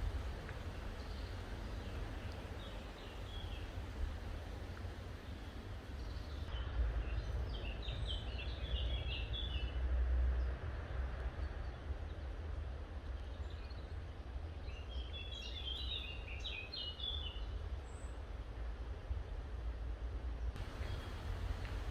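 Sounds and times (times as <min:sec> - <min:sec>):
steady low rumble: 0:00.0 - 0:08.1, 0:20.6 - 0:21.9
songbird chirping: 0:00.0 - 0:09.8, 0:13.1 - 0:18.2, 0:20.6 - 0:21.9.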